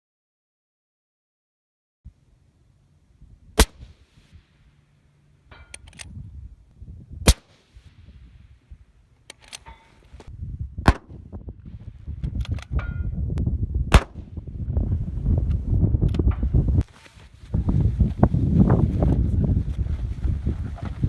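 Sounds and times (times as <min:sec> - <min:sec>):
rifle shots: 0:03.6 - 0:03.9, 0:07.3 - 0:07.6, 0:10.9 - 0:11.2, 0:13.9 - 0:14.4
metallic clicks of rifle bolt: 0:05.6 - 0:06.2, 0:09.2 - 0:10.3, 0:12.2 - 0:12.8.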